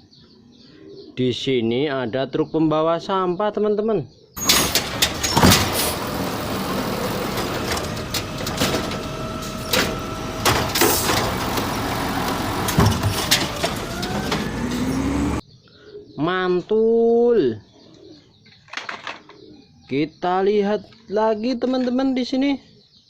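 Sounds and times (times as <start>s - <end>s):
garbage truck engine: 4.4s - 15.4s
knocks and clatter: 4.4s - 15.4s, 18.7s - 19.3s
mechanical whine: 4.4s - 15.4s.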